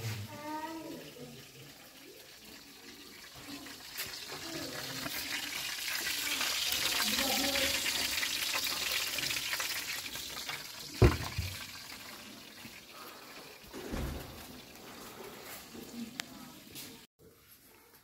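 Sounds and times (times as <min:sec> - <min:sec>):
gas oven hissing: 0:13.5 - 0:15.8.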